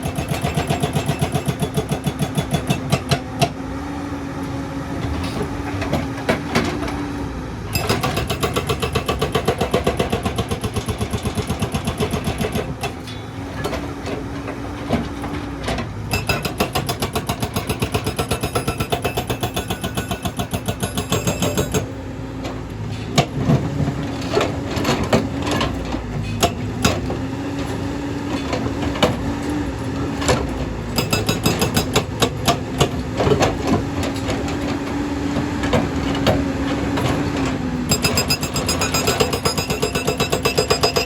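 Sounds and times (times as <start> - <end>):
excavator engine humming: 0.0 - 41.0
sharp knocks and clanks: 15.7 - 21.9, 30.2 - 34.8, 35.6 - 41.0.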